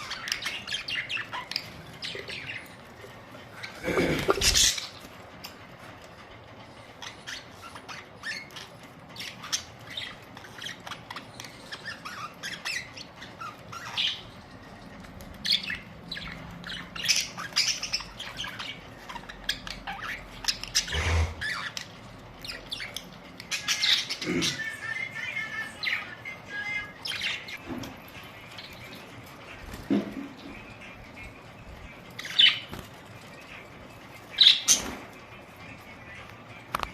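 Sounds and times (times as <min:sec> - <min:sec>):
budgerigars chirping: 0:00.0 - 0:05.2, 0:06.8 - 0:35.4.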